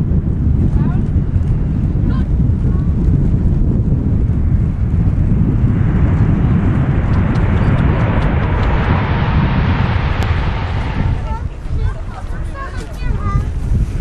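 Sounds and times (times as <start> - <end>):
jet engine roar: 0.0 - 13.5
wind buffeting microphone: 0.0 - 14.0.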